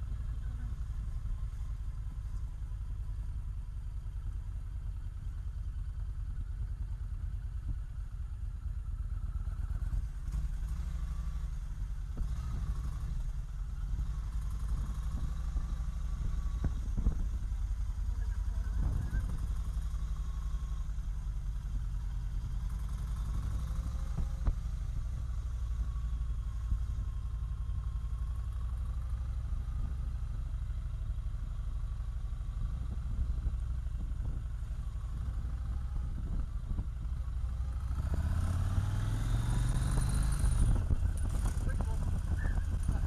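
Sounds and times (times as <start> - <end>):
motorcycle engine rumble: 0.0 - 43.0.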